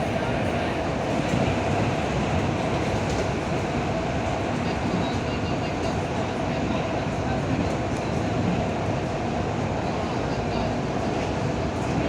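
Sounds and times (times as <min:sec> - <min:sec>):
train wheels rolling on track: 0:00.0 - 0:12.0.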